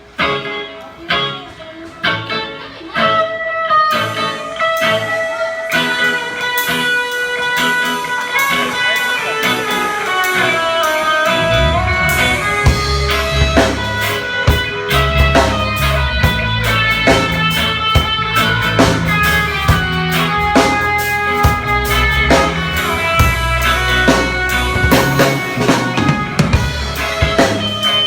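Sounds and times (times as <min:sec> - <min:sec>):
guitar picking melody: 0:00.0 - 0:28.0
sharp beats: 0:06.2 - 0:28.0
heavy low bass: 0:11.2 - 0:27.9.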